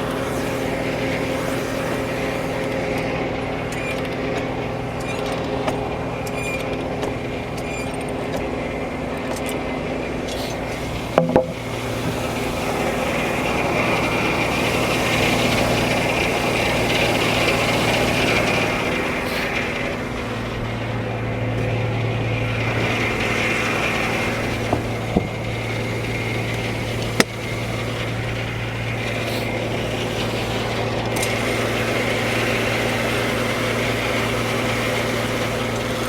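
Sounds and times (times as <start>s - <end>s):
saw cutting through log: 0.0s - 36.0s
sawmill engine humming: 0.0s - 36.0s
double knock: 11.2s - 11.7s.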